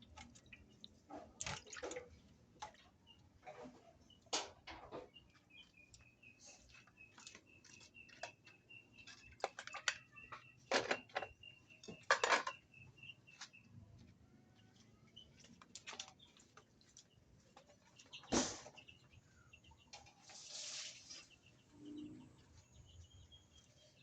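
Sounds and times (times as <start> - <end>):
wet splashes and squelches: 0.0 - 2.8.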